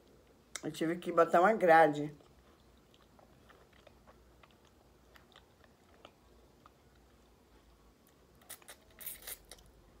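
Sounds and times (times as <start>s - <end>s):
mouth chewing food: 2.1s - 9.8s.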